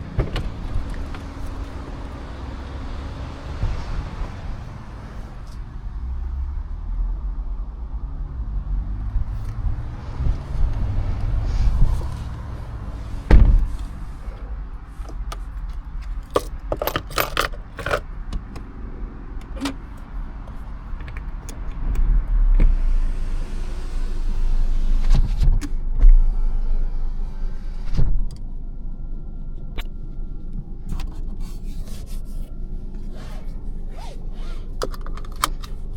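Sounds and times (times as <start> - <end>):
low rumble: 0.0 - 16.4, 18.3 - 34.7
sharp clicks and light rattles: 13.6 - 18.7, 19.4 - 22.1.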